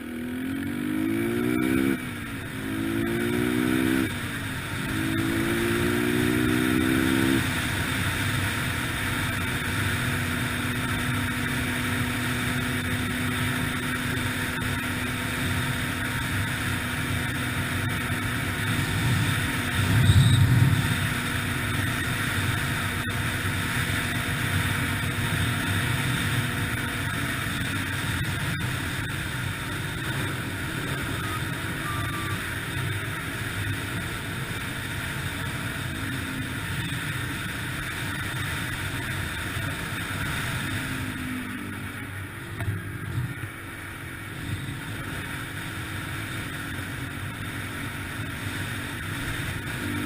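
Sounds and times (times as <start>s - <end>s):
dirt bike engine revving: 0.0s - 9.0s, 12.0s - 32.5s
low rumble: 18.8s - 21.6s.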